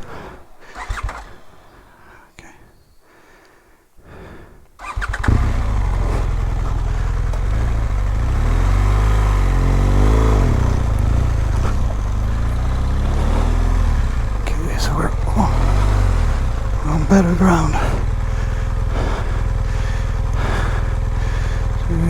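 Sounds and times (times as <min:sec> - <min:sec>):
motorcycle engine revving: 0:04.8 - 0:22.0.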